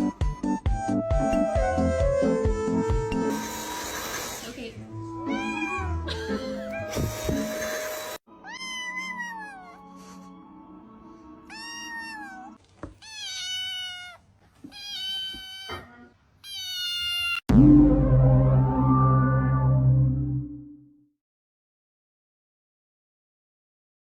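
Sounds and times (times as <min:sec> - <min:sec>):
cat meowing: 0:05.2 - 0:07.3, 0:08.4 - 0:09.9, 0:11.5 - 0:17.4
loud music: 0:17.5 - 0:20.7.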